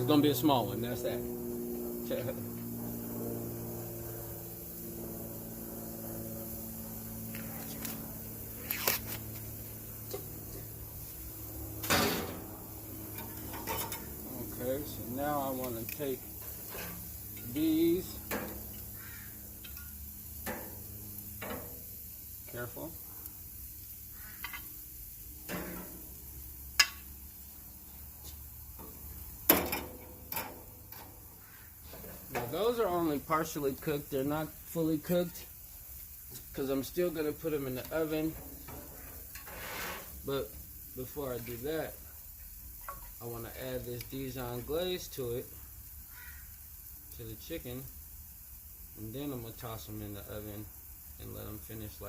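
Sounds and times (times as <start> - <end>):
low hum: 0.0 - 21.9
metal utensil clicks on grill: 19.6 - 20.8, 26.8 - 27.1, 29.5 - 31.1
clicks and knocks at a grill: 28.8 - 31.2.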